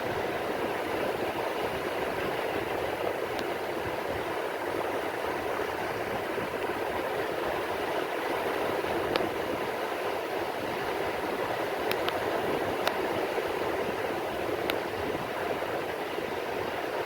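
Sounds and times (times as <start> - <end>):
rain falling on the sea: 0.0 - 17.0
faint sharp tick: 11.9 - 12.2.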